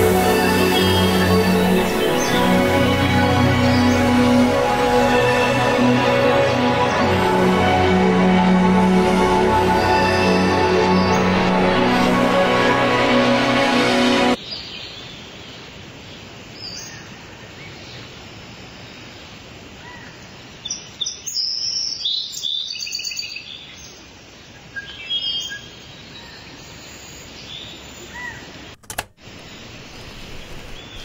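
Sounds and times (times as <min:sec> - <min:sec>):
outdoor background hiss: 0:14.4 - 0:31.0
birds chirping: 0:25.2 - 0:31.0.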